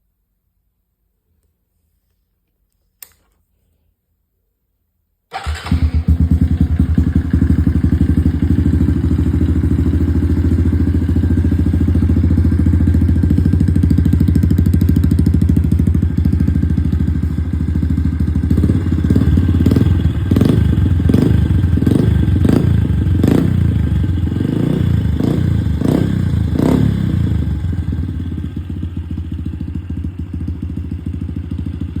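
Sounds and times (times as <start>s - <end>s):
click: 2.4s - 3.4s
dirt bike engine revving: 18.5s - 27.2s.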